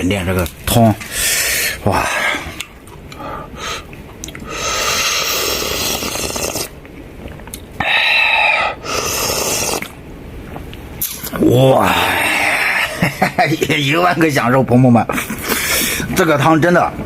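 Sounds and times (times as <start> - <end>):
person slurping soup: 4.5 - 6.8, 7.8 - 10.0.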